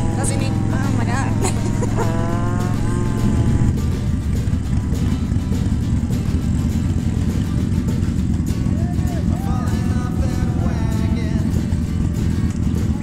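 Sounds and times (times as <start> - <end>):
wind buffeting on microphone: 0.0 - 8.4
motorcycle engine running: 0.0 - 13.0.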